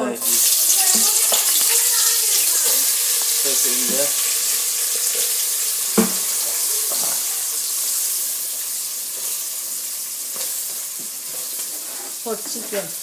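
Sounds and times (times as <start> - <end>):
food sizzling in hot oil: 0.0 - 13.0
sharp knock: 6.0 - 6.2.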